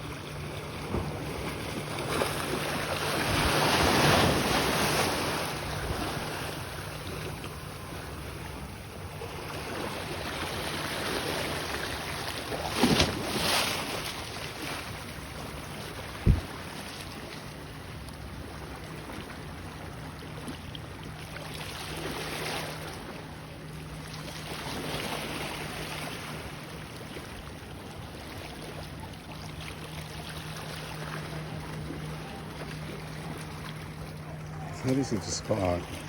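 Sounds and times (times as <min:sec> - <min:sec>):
steady low hum: 0:00.0 - 0:21.2, 0:22.0 - 0:36.0
small waves washing on rocks: 0:00.8 - 0:07.2, 0:09.5 - 0:14.9.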